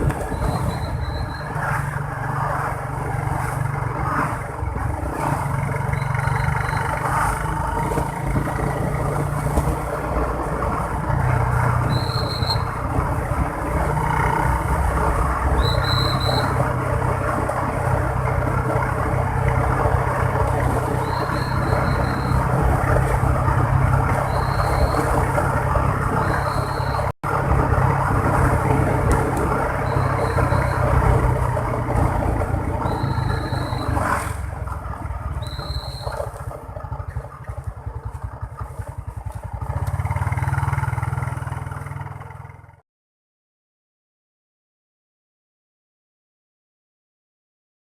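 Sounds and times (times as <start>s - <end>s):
motorbike engine and road noise: 0.0s - 42.8s.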